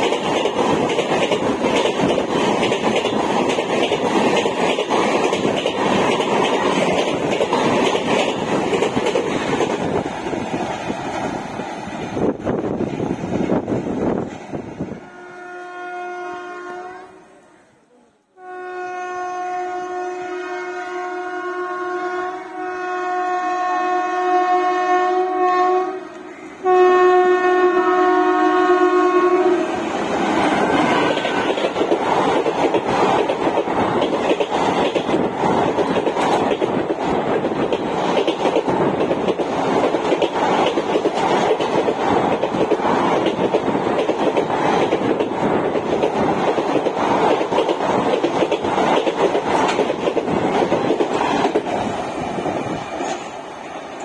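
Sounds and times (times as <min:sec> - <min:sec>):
train coaches rushing past: 0:00.0 - 0:15.6, 0:24.4 - 0:54.0
locomotive horn: 0:15.0 - 0:29.8.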